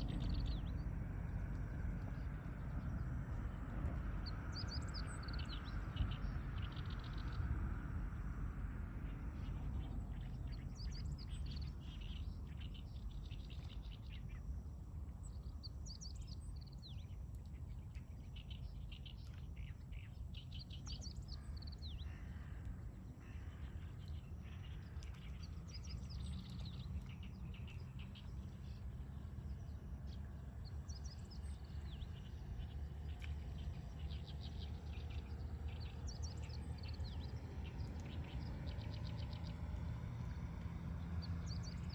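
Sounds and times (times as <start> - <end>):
steady low rumble: 0.0 - 41.9
small birds chirping: 15.2 - 40.4.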